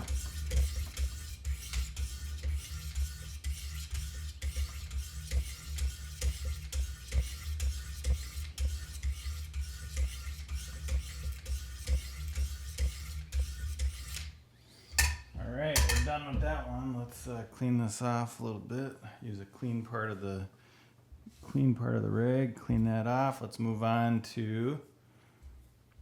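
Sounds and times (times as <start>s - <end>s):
sharpening stone scraping knife blade: 0.0s - 14.2s.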